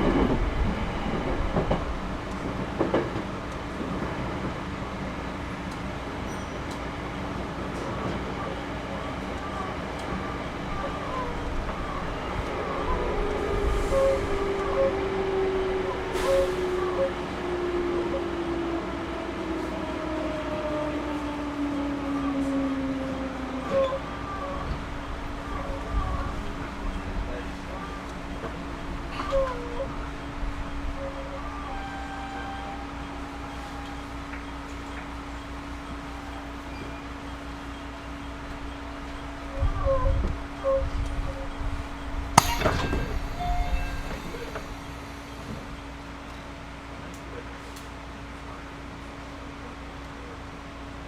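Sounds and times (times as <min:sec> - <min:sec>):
train wheels rumbling on rail: 0:00.0 - 0:18.1
train interior rumble and hum: 0:00.0 - 0:51.0.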